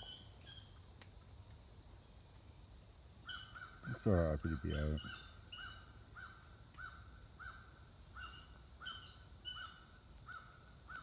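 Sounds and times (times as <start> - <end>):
higher bird chirps: 0.0 - 0.8, 3.2 - 11.0
faint bird call: 3.2 - 11.0.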